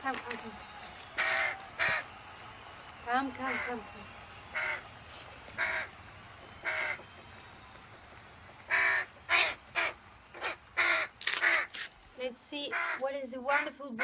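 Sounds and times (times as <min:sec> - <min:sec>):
crow cawing: 0:01.2 - 0:02.0, 0:03.5 - 0:03.8, 0:04.6 - 0:04.8, 0:05.6 - 0:05.9, 0:06.6 - 0:07.0, 0:08.7 - 0:11.8, 0:12.7 - 0:14.0.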